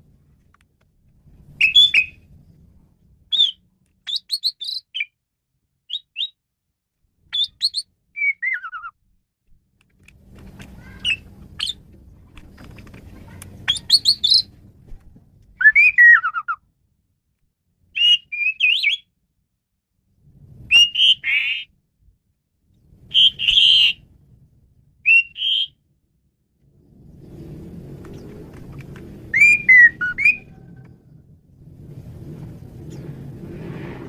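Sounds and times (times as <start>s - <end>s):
faint low hum: 0.0s - 4.4s, 8.6s - 17.5s.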